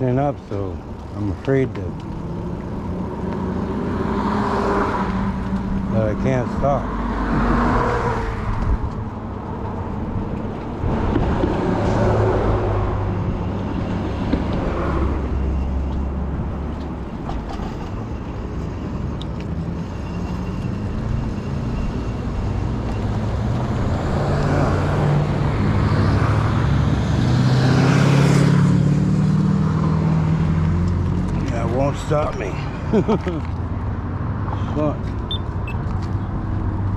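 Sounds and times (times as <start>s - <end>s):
wind noise: 7.2s - 15.0s.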